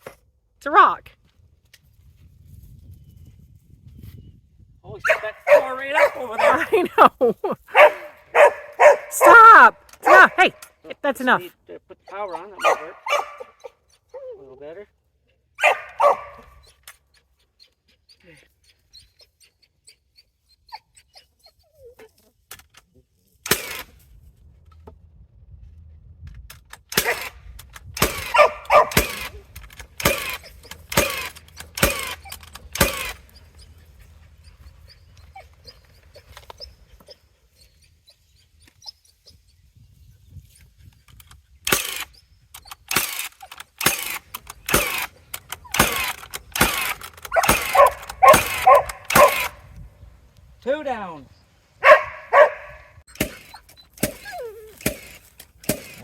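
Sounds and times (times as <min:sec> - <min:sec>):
dog barking: 0:05.0 - 0:06.8, 0:07.7 - 0:10.6, 0:12.6 - 0:13.7, 0:15.6 - 0:16.6, 0:28.2 - 0:29.3, 0:47.3 - 0:49.6, 0:51.8 - 0:53.0
nail gun firing: 0:23.4 - 0:24.0, 0:26.8 - 0:33.3, 0:41.7 - 0:42.1, 0:42.8 - 0:49.6, 0:53.1 - 0:56.0.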